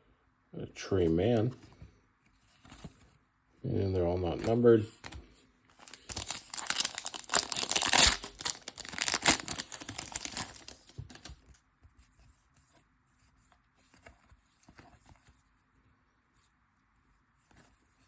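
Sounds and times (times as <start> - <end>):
plastic wrapper tearing and crinkling: 5.0 - 11.5.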